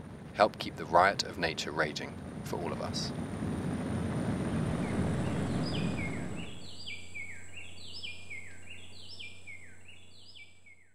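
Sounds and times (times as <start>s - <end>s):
low rumble: 0.0s - 8.7s
bird whistling descending notes: 4.7s - 10.9s
rainforest ambience: 4.8s - 10.6s.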